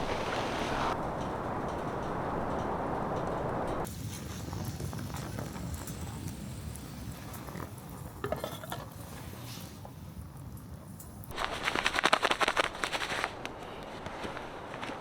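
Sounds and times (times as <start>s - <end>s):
low rumble: 0.0s - 3.9s
steady rushing noise: 0.0s - 5.3s.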